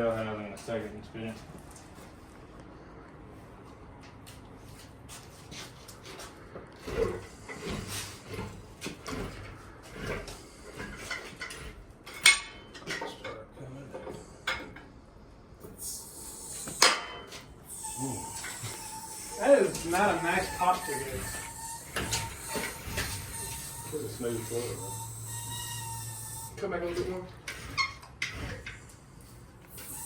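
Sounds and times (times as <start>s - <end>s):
metallic clanks and knocks: 6.9s - 13.4s
hissing: 15.8s - 30.0s.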